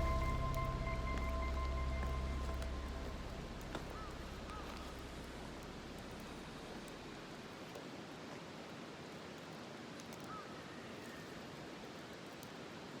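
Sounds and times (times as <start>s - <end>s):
short high chirp: 0.0s - 4.5s
even rushing noise: 0.0s - 7.1s.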